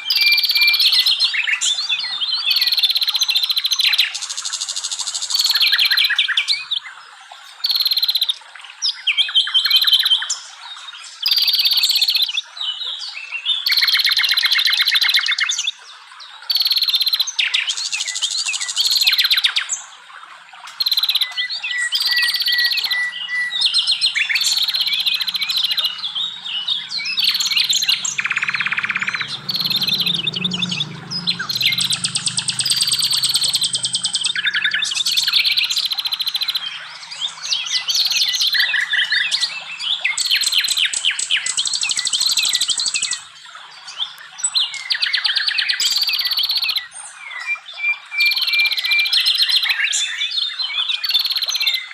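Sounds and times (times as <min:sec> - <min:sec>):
songbirds singing: 0:20.6 - 0:51.9
faint low hum: 0:22.6 - 0:38.4.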